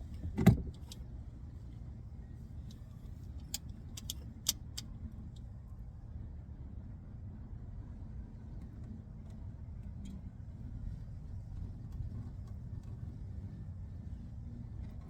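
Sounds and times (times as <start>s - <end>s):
sharp light metal clicks: 2.7s - 5.5s.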